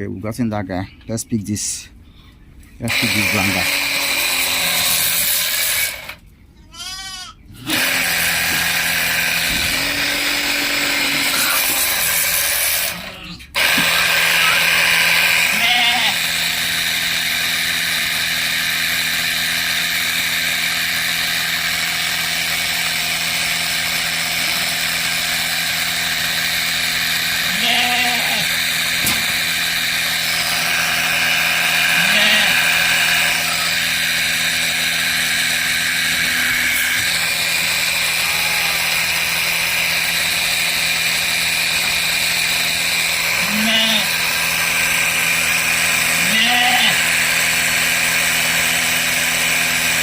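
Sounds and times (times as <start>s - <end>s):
motorized sprayer running: 2.8s - 6.2s, 7.6s - 50.0s
goat bleating: 6.6s - 7.8s, 10.6s - 12.0s, 15.5s - 16.2s, 27.4s - 28.6s, 31.7s - 33.8s, 38.2s - 39.0s, 43.4s - 44.2s, 46.2s - 47.1s.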